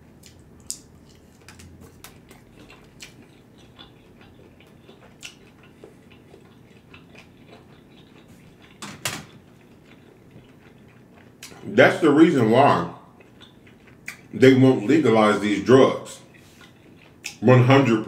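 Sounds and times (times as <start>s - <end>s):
wet chewing and lip smacks: 0.2s - 11.6s, 13.1s - 14.4s, 16.2s - 17.4s.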